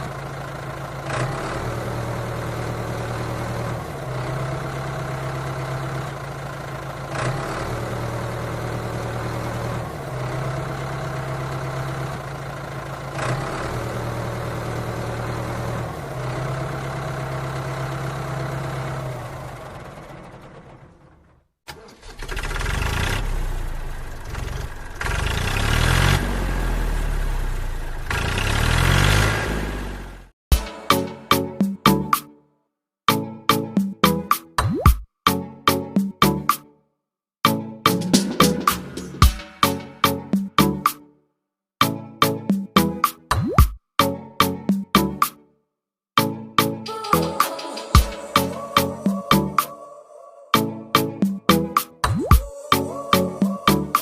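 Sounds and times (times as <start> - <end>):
tractor engine idling: 0.0 - 25.9
engine revving: 0.0 - 30.4.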